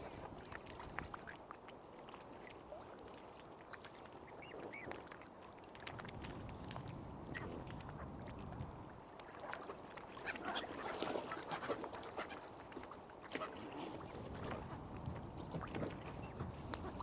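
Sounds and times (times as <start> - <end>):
waterfowl quacking and honking: 10.1 - 12.6.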